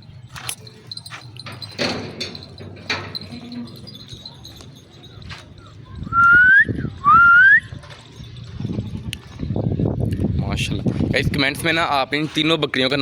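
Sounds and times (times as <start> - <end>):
person whistling: 6.1 - 7.7.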